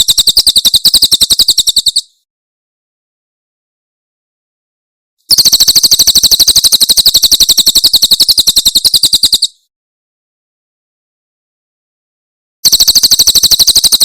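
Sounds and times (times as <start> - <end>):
bird trilling high-pitched: 0.0 - 2.2, 5.3 - 9.6, 12.6 - 14.0.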